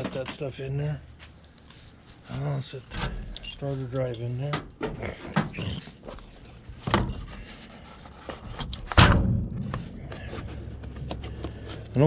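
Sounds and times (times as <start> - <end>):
hand tools clunking set down: 6.8 - 7.6.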